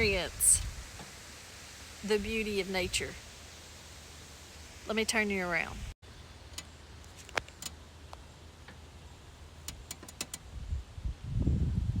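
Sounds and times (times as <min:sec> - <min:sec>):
wind buffeting microphone: 0:00.0 - 0:01.0, 0:10.4 - 0:12.0.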